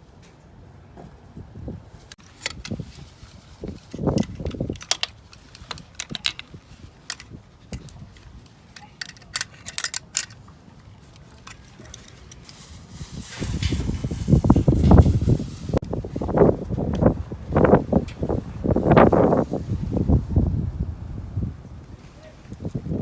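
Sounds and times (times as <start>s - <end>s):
tools and metal fittings handled: 2.2s - 15.8s.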